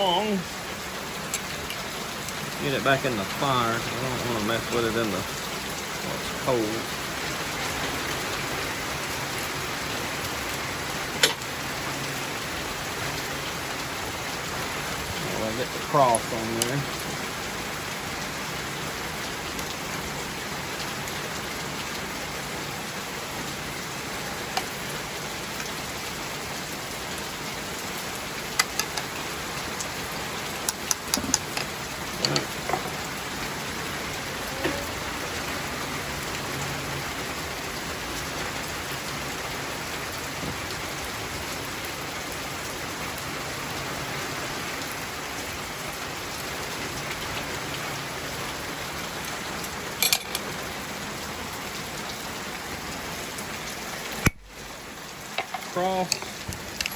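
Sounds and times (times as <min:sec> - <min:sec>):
heavy rain: 0:00.0 - 0:56.9
sharp clicks and taps: 0:30.7 - 0:32.8.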